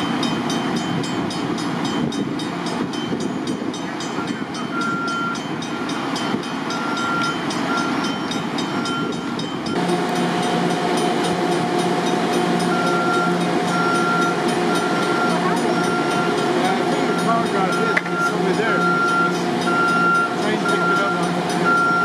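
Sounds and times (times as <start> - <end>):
electric train humming: 0.0 - 22.0
level-crossing bell ringing: 0.0 - 22.0
hum with pitched tones: 9.7 - 22.0.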